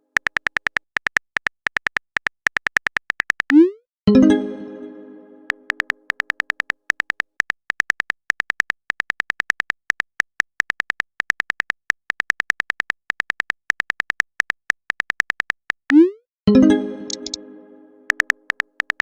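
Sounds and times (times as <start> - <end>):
typing clicks with ringing tone: 0.0 - 3.6, 5.5 - 15.9, 17.1 - 17.4, 18.1 - 19.0.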